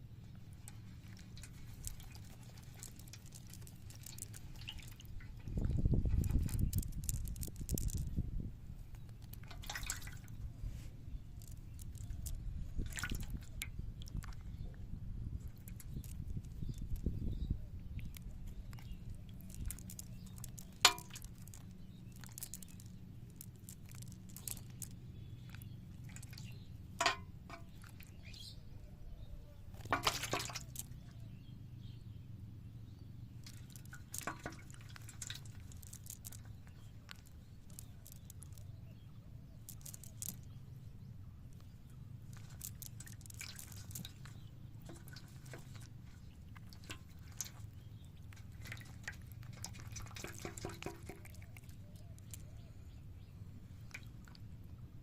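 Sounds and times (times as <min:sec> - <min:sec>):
low steady hum: 0:00.0 - 0:55.0
water splashes and drips: 0:00.4 - 0:08.2, 0:09.0 - 0:14.8, 0:17.9 - 0:28.5, 0:29.8 - 0:31.2, 0:33.4 - 0:38.7, 0:42.3 - 0:52.7, 0:53.8 - 0:54.8.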